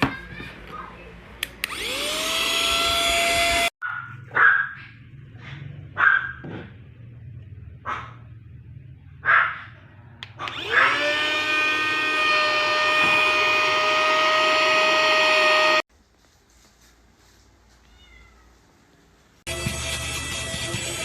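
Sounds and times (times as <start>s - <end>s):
mini vacuum cleaner whining: 1.6s - 3.7s, 10.4s - 15.8s
dog barks: 3.8s - 6.6s, 7.8s - 8.3s, 9.2s - 9.8s.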